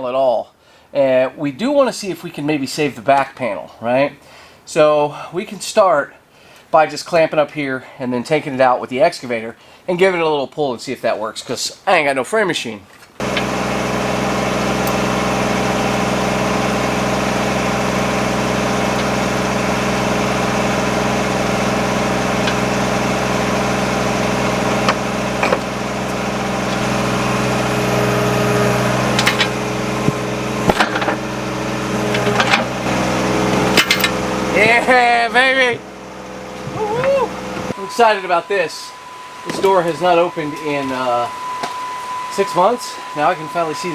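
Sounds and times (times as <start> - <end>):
excavator diesel engine running: 13.2 - 41.6.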